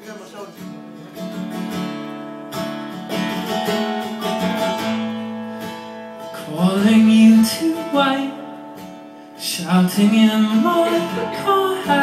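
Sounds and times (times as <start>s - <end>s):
acoustic guitar chords: 0.0s - 12.0s
man singing: 6.3s - 8.6s, 9.4s - 12.0s.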